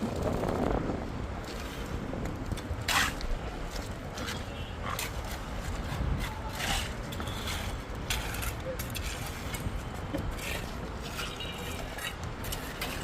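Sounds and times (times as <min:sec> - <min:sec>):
sharp scrapes: 0:02.8 - 0:03.5, 0:04.2 - 0:13.0.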